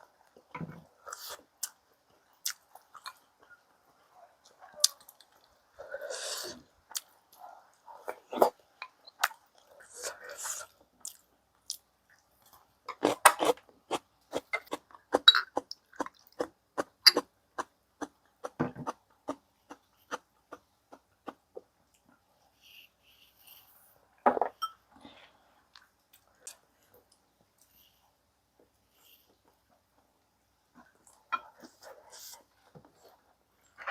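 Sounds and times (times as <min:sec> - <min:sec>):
person chewing food: 0:00.2 - 0:05.8, 0:06.8 - 0:22.3.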